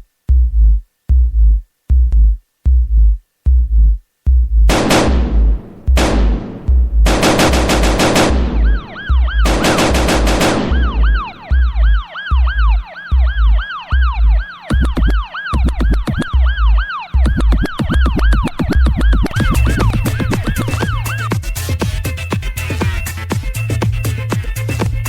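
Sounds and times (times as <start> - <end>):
kick drum beat: 0.0 - 25.0
quick percussive hits: 4.7 - 11.8
siren-like synth wail: 7.8 - 21.4.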